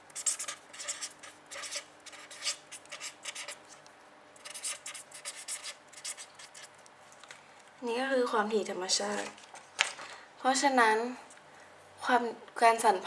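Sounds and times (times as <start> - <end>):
pen scratching on surface: 0.2 - 3.6, 4.4 - 6.7.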